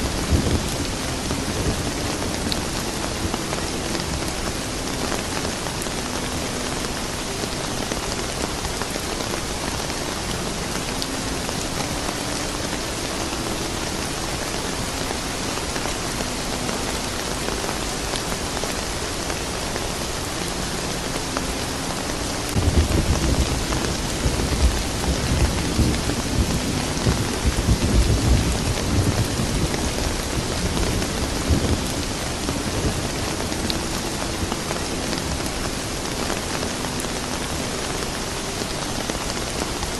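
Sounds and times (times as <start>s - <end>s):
steady rain hiss: 0.0s - 39.9s
rumble of thunder: 22.6s - 33.8s.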